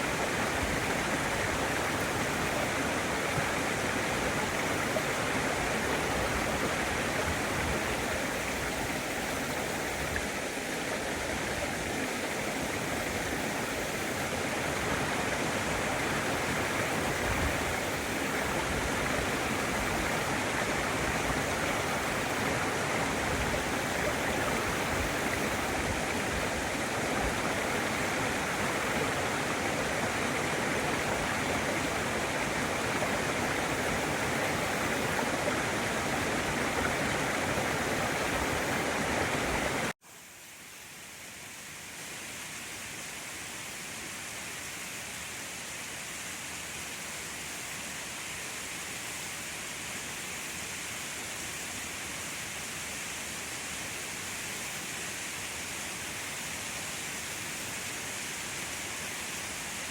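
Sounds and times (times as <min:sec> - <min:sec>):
waterfall roaring: 0:00.0 - 0:39.9
quieter hissy water rush: 0:00.0 - 0:59.9.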